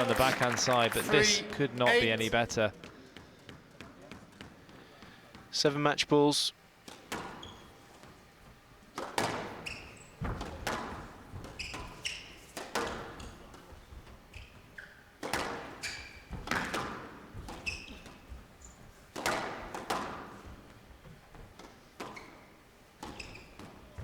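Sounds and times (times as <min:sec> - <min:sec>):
shoes squeaking on court floor: 0:00.0 - 0:05.6, 0:06.9 - 0:24.0
ball thumping against walls: 0:08.9 - 0:13.7, 0:15.2 - 0:24.0
squash ball cracking off rackets: 0:08.9 - 0:13.7, 0:15.2 - 0:18.3, 0:19.1 - 0:20.6.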